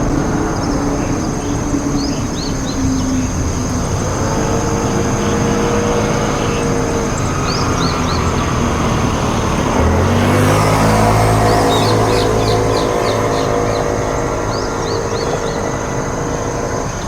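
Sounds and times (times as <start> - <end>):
steady high-pitched whine: 0.0 - 9.9, 10.9 - 17.0
deeper engine sound: 0.0 - 17.0
vehicle engine running: 0.0 - 17.0
high bird chirps: 10.5 - 17.0.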